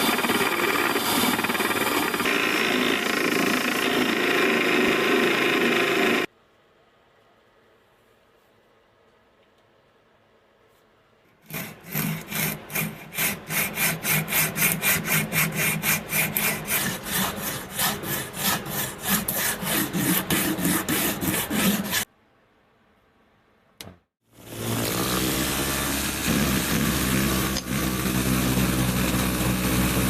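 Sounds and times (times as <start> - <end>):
hand saw cutting wood: 0.0 - 6.3, 11.3 - 22.1, 24.4 - 30.0.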